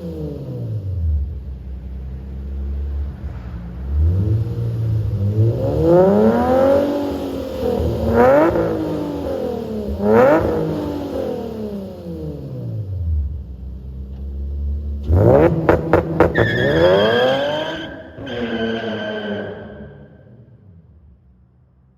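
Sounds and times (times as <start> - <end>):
car engine revving: 0.0 - 21.3
car engine idling: 0.8 - 17.0.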